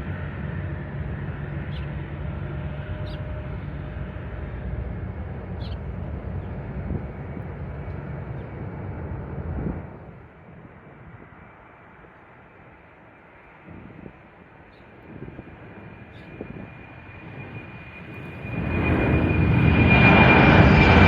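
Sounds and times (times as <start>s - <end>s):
jet engine roar: 0.0s - 21.0s
faint bird chirps: 5.6s - 5.8s.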